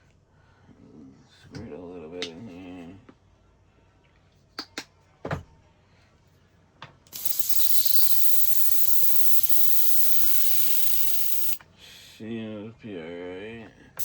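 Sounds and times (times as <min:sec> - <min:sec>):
short clicks: 0:07.1 - 0:11.6
airbrush spraying hiss: 0:07.2 - 0:11.6.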